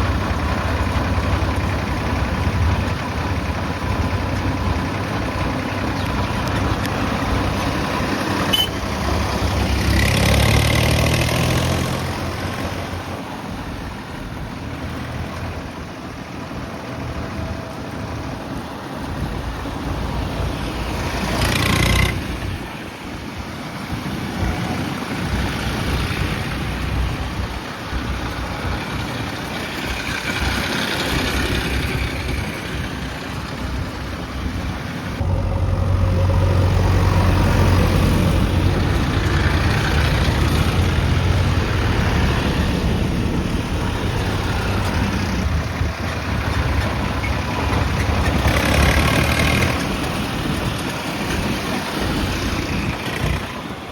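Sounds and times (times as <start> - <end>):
heavy diesel engines running: 0.0 - 53.9
low engine drone: 28.4 - 50.6.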